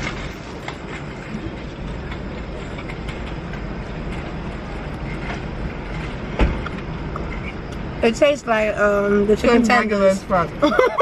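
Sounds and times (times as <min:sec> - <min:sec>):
low rumbling background noise: 0:00.0 - 0:11.0
sharp thump: 0:06.4 - 0:06.7.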